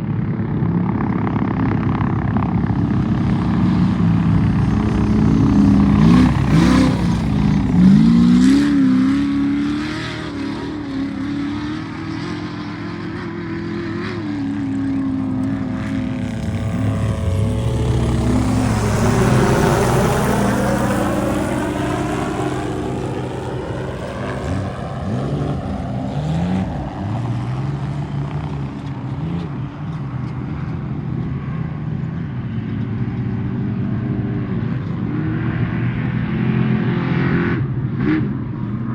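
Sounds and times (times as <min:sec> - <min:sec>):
race vehicle engines revving: 0:03.2 - 0:30.0
vehicle passing by: 0:03.5 - 0:10.4, 0:13.8 - 0:28.3.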